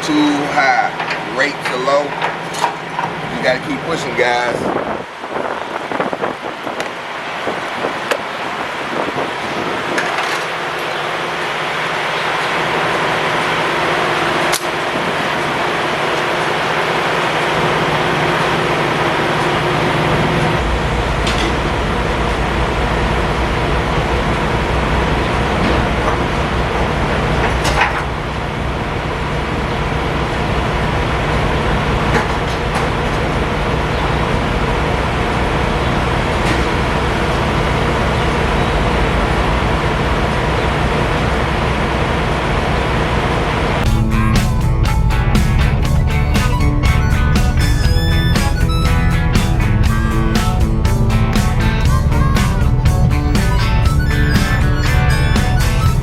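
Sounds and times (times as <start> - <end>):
truck diesel engine running: 0.0 - 56.0
vehicle noise: 0.0 - 56.0
low even hum: 18.8 - 41.2.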